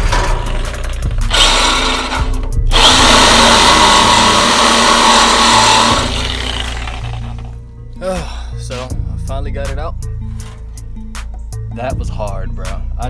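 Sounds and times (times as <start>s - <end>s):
saw cutting steel pipe: 0.0s - 7.6s, 10.3s - 11.2s.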